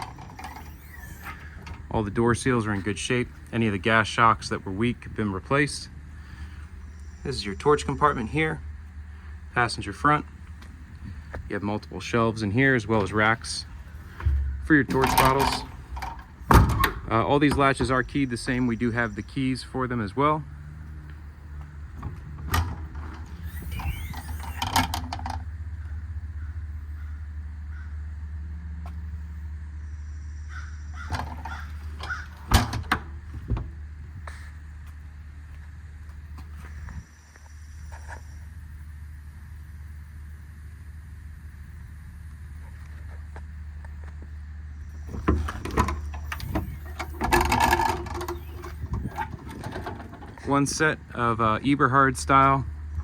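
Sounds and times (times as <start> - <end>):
brief squeak: 0.0 - 1.6, 23.3 - 24.9
rattling metal scrape: 0.0 - 3.0, 13.4 - 18.7, 21.9 - 25.5, 31.0 - 33.8, 44.9 - 51.3
steady low hum: 0.0 - 53.0
metal latch clicks and knocks: 14.2 - 18.2, 22.0 - 25.5, 31.0 - 33.8, 45.1 - 50.5.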